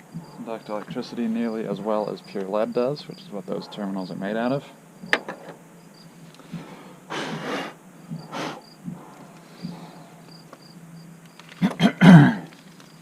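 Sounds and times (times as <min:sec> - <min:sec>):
crickets chirping: 0:00.0 - 0:13.0
small clicks: 0:10.5 - 0:11.8.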